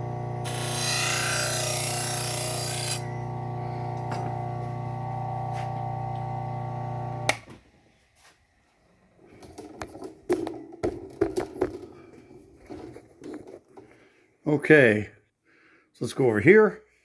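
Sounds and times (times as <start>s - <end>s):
bench sander humming: 0.0s - 7.4s.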